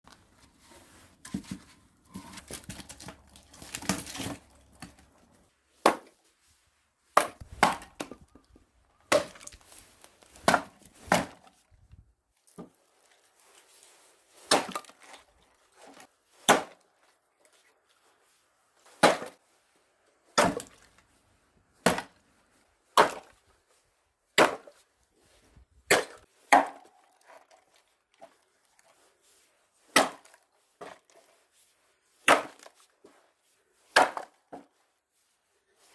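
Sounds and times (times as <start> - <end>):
axe chopping wood: 1.2 - 5.0, 5.8 - 6.2, 7.2 - 8.4, 9.1 - 9.6, 10.4 - 11.5, 14.5 - 15.0, 16.4 - 16.8, 19.0 - 19.4, 20.4 - 20.8, 21.8 - 22.2, 23.0 - 23.3, 24.4 - 24.8, 25.9 - 27.0, 29.9 - 31.0, 32.2 - 32.7, 33.9 - 34.6
split wood pieces falling: 1.2 - 5.2, 7.2 - 11.5.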